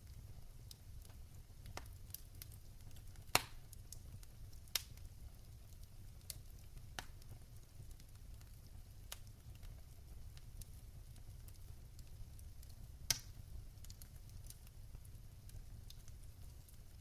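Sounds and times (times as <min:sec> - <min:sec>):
fire crackling in fireplace: 0:00.0 - 0:17.0
sharp fire pops: 0:03.2 - 0:04.0, 0:13.1 - 0:14.4.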